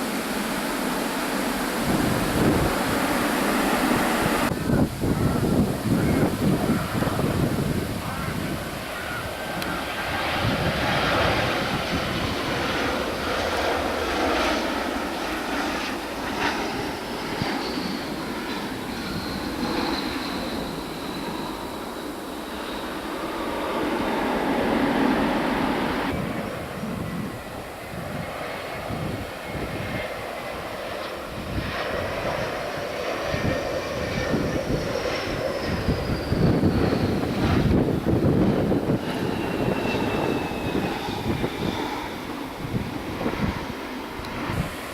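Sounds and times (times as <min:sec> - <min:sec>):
high whine falling in pitch: 0:00.0 - 0:27.7
jet engines running: 0:00.0 - 0:44.9.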